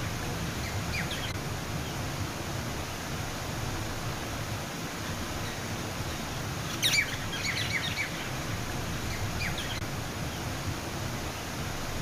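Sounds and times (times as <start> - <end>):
small birds chirping: 0.0 - 2.1, 5.1 - 10.5
outdoor background rumble: 0.0 - 12.0.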